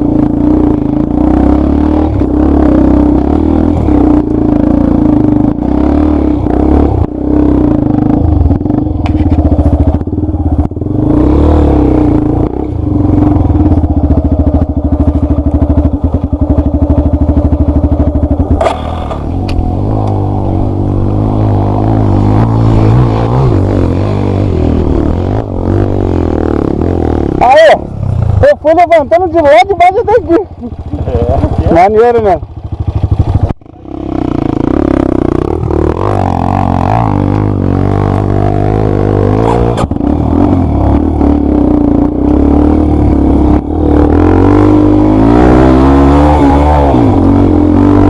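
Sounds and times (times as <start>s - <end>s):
dirt bike engine running hard: 0.0s - 48.0s
bike clattering and scraping: 8.9s - 10.0s.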